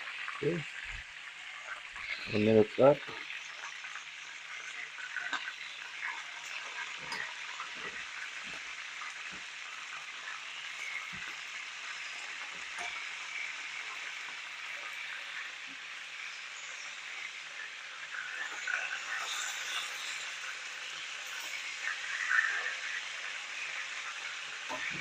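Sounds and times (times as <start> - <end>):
chicken sizzling in a pan: 0.0 - 25.0.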